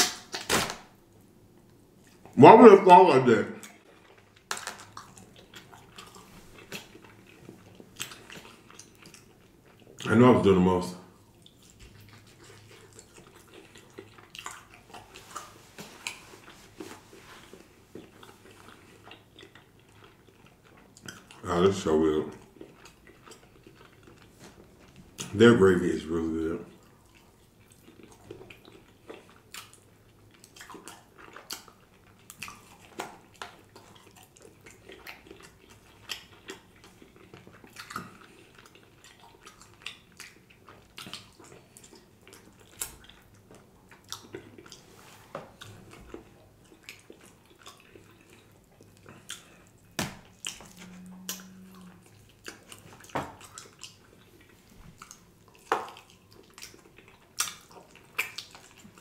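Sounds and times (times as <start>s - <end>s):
biting and chewing: 3.6s - 10.1s, 11.1s - 25.4s, 26.7s - 44.8s, 45.4s - 59.0s
low hum: 50.6s - 52.2s
wet mouth clicks and lip smacks: 55.0s - 59.0s.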